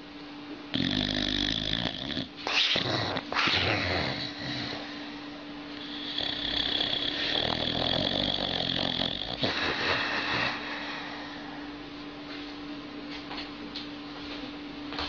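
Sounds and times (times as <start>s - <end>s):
steady low hum: 0.0s - 15.0s
dog snoring: 0.7s - 11.8s.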